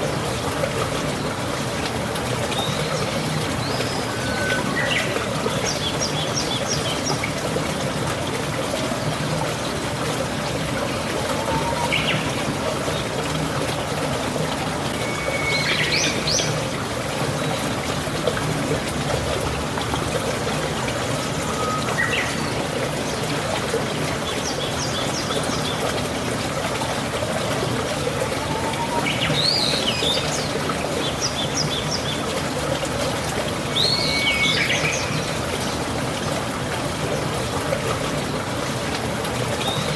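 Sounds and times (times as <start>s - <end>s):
steady rain falling: 0.0s - 39.9s
birds whistling and chirping: 2.6s - 7.0s, 11.3s - 12.4s, 15.0s - 16.6s, 21.4s - 22.6s, 28.3s - 30.5s, 33.7s - 35.3s.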